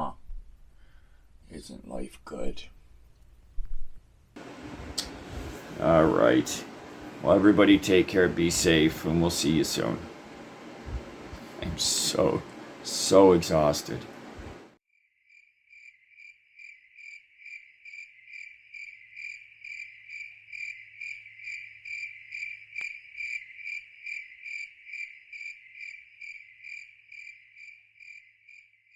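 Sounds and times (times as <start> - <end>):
cricket chirping: 15.3 - 28.9.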